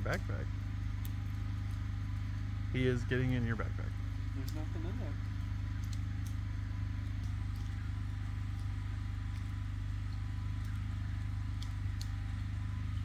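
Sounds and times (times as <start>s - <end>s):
generator engine running: 0.0s - 13.0s
faint clicks: 7.0s - 12.6s.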